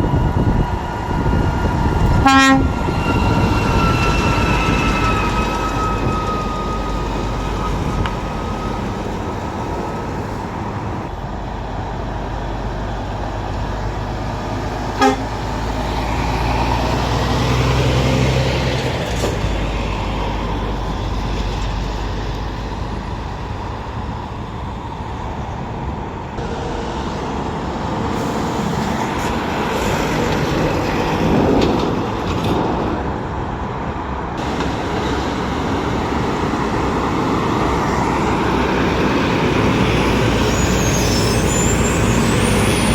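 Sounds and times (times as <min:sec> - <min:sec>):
heavy traffic and truck engines: 0:00.0 - 0:42.9
short horn toot: 0:02.2 - 0:02.8, 0:15.0 - 0:15.3.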